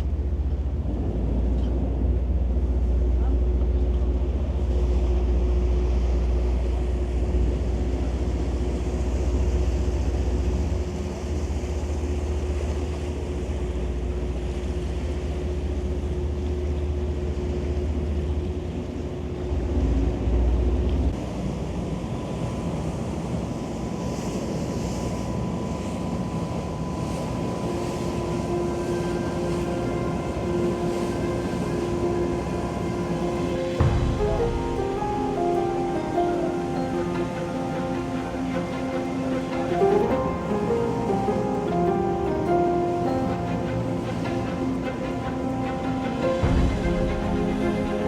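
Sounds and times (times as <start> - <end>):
boat engines droning: 0.0 - 48.0
wind: 0.0 - 48.0
water rushing past hull: 24.1 - 48.0.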